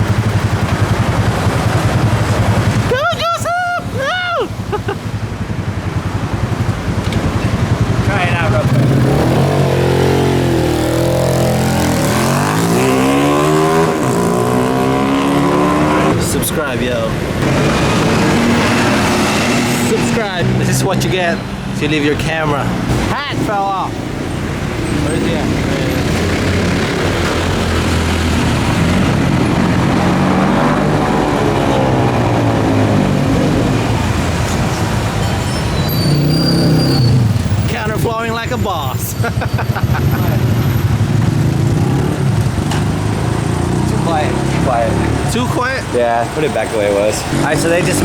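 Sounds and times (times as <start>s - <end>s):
motorcycle engine accelerating: 0.0s - 2.9s, 4.6s - 16.3s, 17.3s - 21.2s, 24.5s - 35.2s, 39.2s - 46.2s
street traffic: 0.0s - 48.0s
vehicle passing close by: 6.0s - 23.0s, 24.3s - 35.2s.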